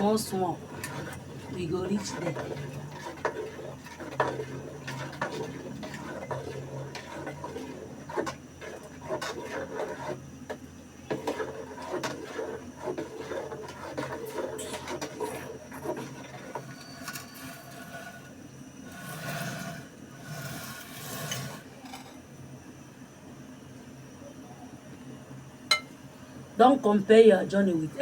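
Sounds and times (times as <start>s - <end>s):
utensils scraping against pots: 0.0s - 10.2s, 11.1s - 22.2s.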